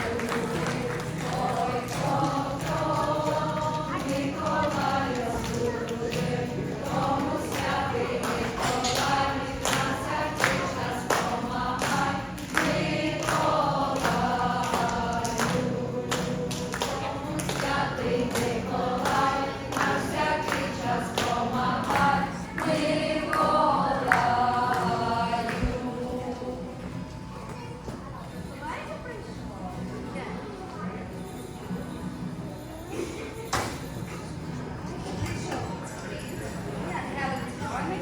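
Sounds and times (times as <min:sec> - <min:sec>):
choir singing: 0:00.0 - 0:27.2.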